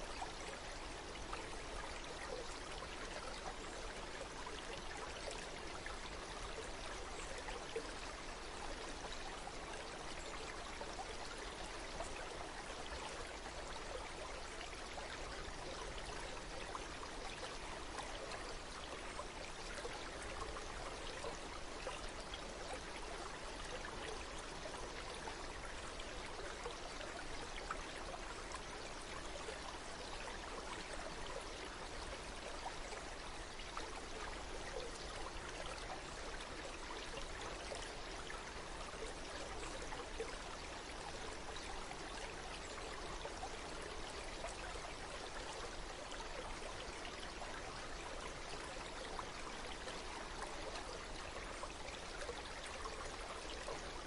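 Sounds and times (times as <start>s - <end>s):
stream of running water: 0.0s - 54.0s.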